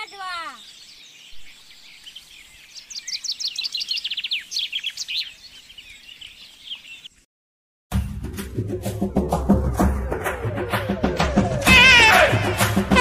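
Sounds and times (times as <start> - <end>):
songbird chirping: 0.0 - 7.3.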